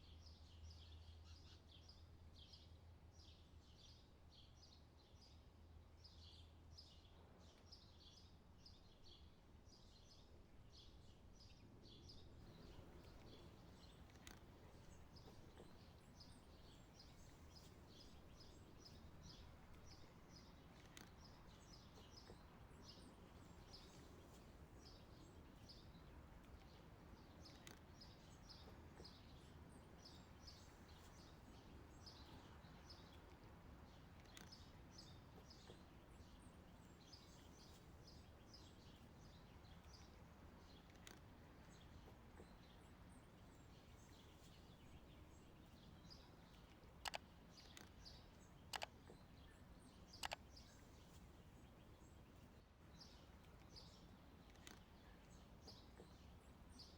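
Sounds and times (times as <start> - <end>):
faint birds chirping: 0.0 - 56.9
soft clicks: 12.4 - 56.6.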